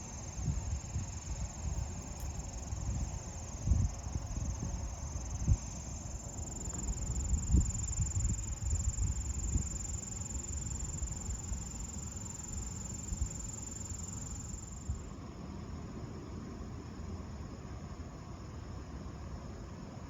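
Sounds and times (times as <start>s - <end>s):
wind buffeting microphone: 0.4s - 5.7s, 6.6s - 9.9s.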